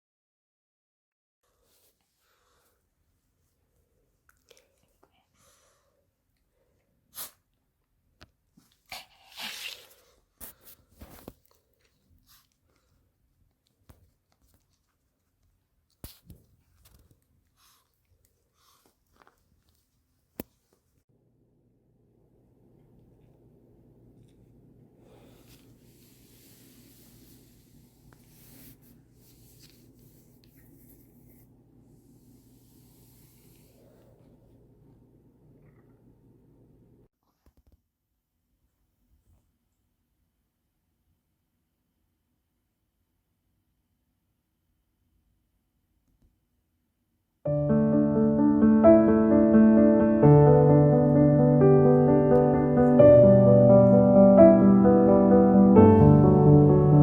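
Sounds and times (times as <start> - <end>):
faint scratching and rustling: 25.2 - 34.2.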